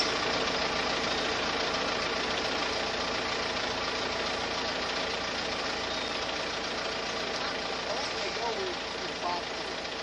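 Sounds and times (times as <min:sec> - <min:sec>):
engine droning with hiss: 0:00.0 - 0:10.0.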